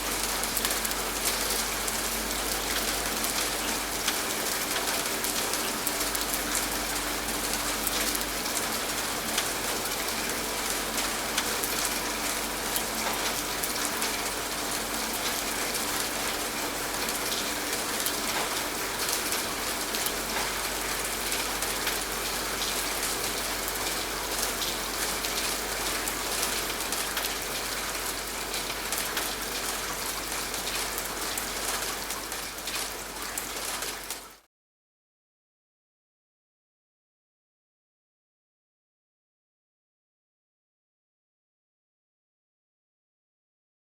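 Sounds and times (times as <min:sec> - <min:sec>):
steady rain falling: 0:00.0 - 0:34.5.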